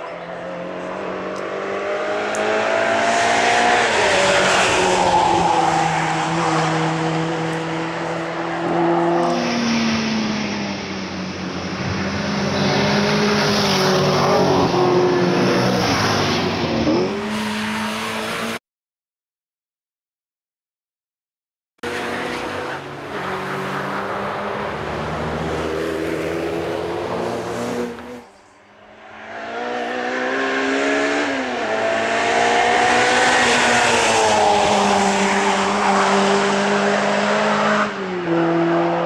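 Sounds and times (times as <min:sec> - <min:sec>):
race car engine high-revving: 0:00.3 - 0:10.8, 0:11.5 - 0:18.6, 0:29.0 - 0:39.0.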